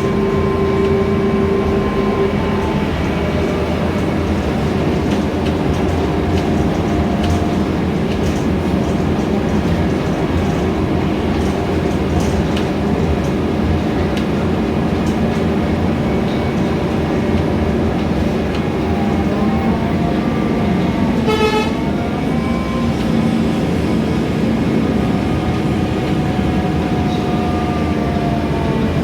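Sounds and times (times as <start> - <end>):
bus engine humming: 0.0 - 29.0
short horn toot: 21.3 - 21.8.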